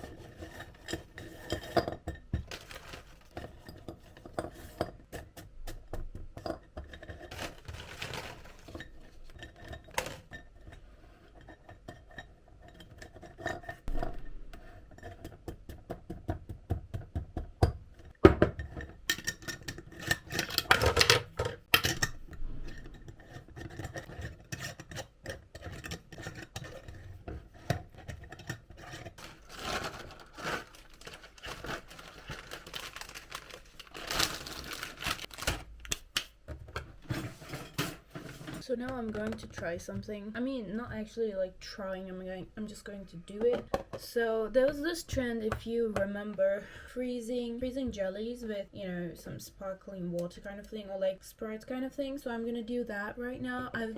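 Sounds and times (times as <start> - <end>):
dishes and cutlery clattering: 36.8 - 38.6.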